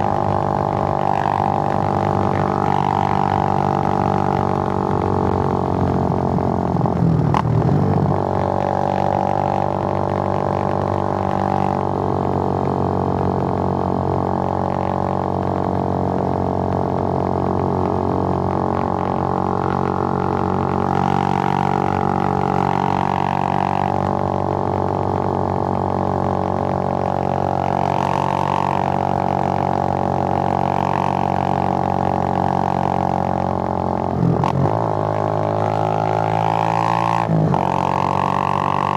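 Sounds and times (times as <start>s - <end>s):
motorcycle engine droning: 0.0s - 38.9s.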